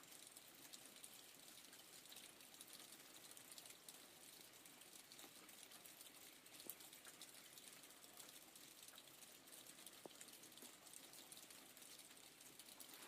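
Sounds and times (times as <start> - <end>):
faint light rain: 0.0 - 13.0
rain drop ticks: 0.0 - 13.0.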